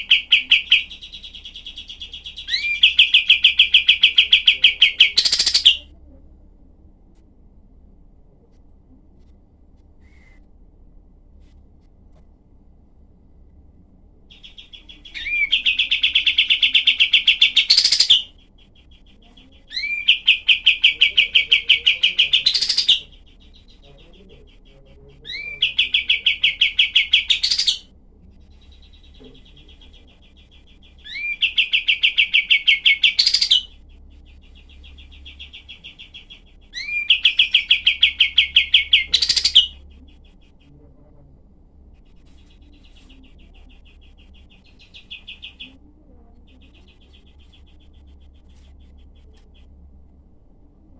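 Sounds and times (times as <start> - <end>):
bird song rattling trills: 0.0 - 5.8, 14.3 - 40.8, 42.1 - 45.8, 46.4 - 49.8.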